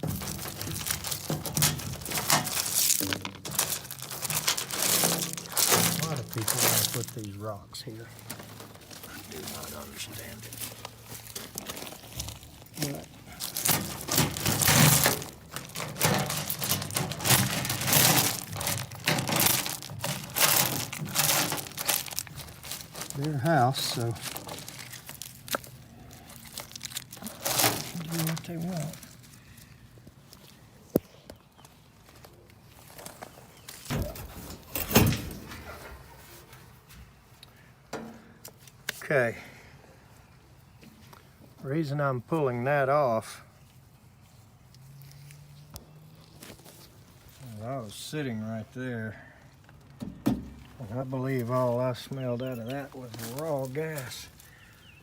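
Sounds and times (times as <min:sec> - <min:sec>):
metal panel scraping clanks: 0:00.0 - 0:02.8
rocks crunching and scraping: 0:00.0 - 0:37.3, 0:40.7 - 0:55.0.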